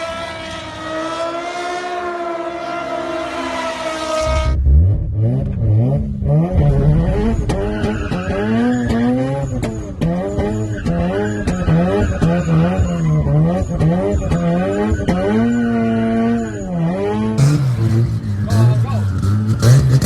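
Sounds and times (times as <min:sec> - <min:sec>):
car engine revving hard: 0:00.0 - 0:20.0
exhaust cracks: 0:03.9 - 0:15.6.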